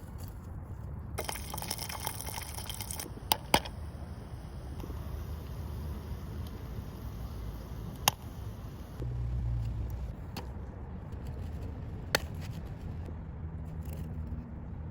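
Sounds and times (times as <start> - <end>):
low rumbling background: 0.9 - 14.9
popcorn kernels popping: 1.2 - 4.0, 4.6 - 9.0.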